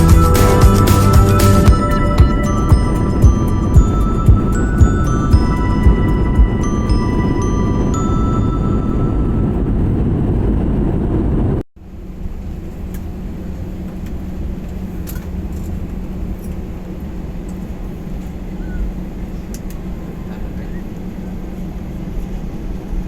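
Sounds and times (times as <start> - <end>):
music notes: 0.0 - 9.9
loud rumbling ride noise: 0.0 - 23.0
low droning hum: 0.0 - 23.0.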